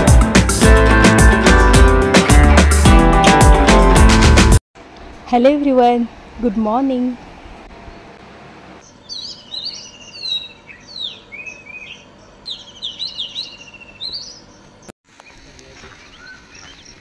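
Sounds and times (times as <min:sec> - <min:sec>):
bird singing whistles and trills: 0:08.8 - 0:14.6, 0:16.0 - 0:17.0.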